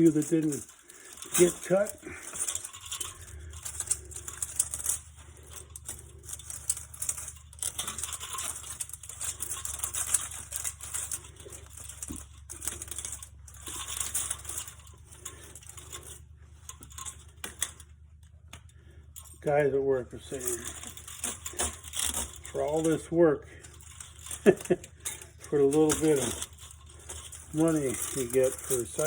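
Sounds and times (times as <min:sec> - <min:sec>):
low steady hum: 0:00.0 - 0:29.0
metal fins crinkling and scraping: 0:00.0 - 0:29.0.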